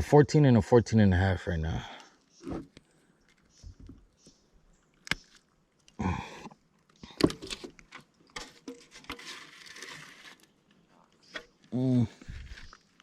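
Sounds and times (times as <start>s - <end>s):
rustling: 6.9s - 13.0s.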